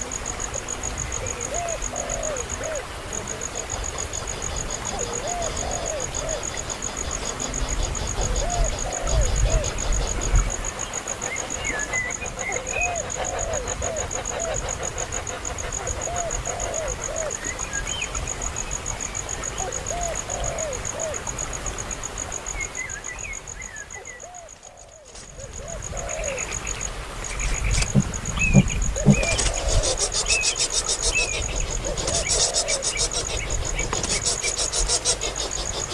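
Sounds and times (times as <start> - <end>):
insect trilling: 3.4 - 17.4, 24.7 - 35.9
short chirping calls: 27.3 - 35.9
low thumps: 27.7 - 29.5.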